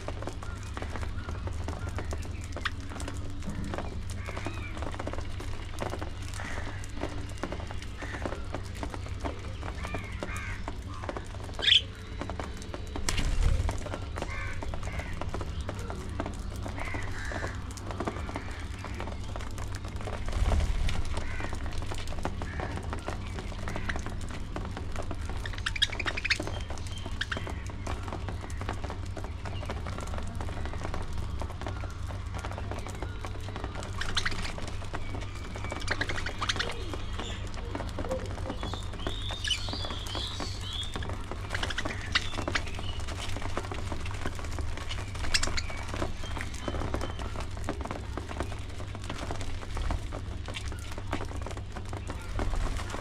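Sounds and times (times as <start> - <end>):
steady low rumble: 0.0 - 53.0
budgerigars chattering and chirping: 11.6 - 11.9, 25.4 - 27.7, 33.9 - 37.8, 38.4 - 43.6, 44.8 - 47.3.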